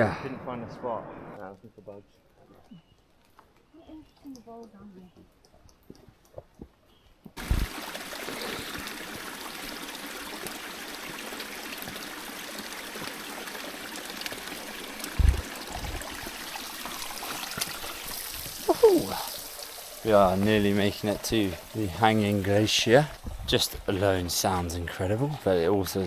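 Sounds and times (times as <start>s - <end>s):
faint clicks: 1.4s - 6.7s
stream water rushing: 7.4s - 25.1s
low thumps: 15.2s - 16.1s.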